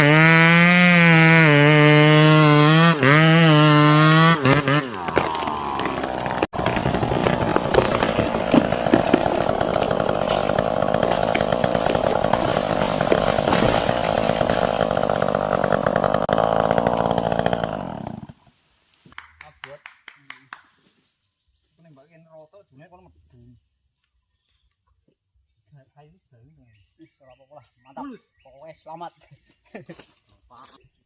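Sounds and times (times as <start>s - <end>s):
chainsaw cutting tree: 0.0s - 18.4s.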